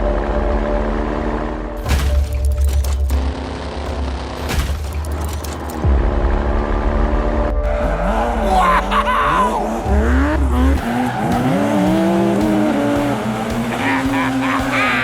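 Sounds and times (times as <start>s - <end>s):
vehicle engine revving: 0.0s - 1.9s, 2.8s - 15.0s
tire squeal: 7.7s - 15.0s.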